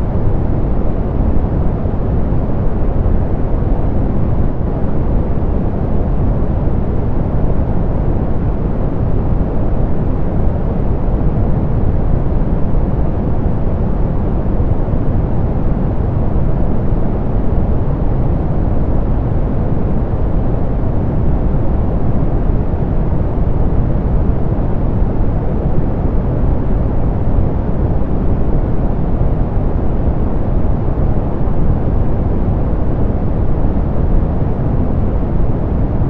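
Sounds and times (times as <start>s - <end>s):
soft pink noise hiss: 0.0s - 36.0s.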